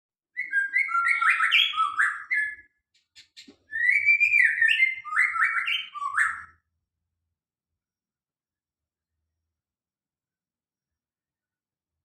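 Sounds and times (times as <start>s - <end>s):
songbird singing: 0.4s - 6.6s.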